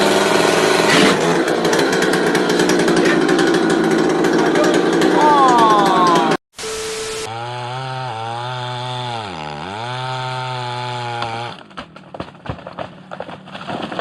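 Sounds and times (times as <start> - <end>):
chainsaw engine running: 0.0 - 11.7
cracks and crackles: 11.7 - 14.0.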